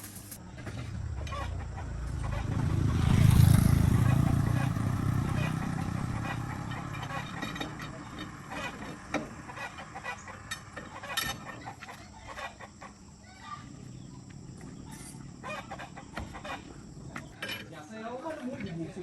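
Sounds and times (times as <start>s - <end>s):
low engine-like hum: 0.4s - 12.3s
chickens clucking: 0.4s - 17.6s.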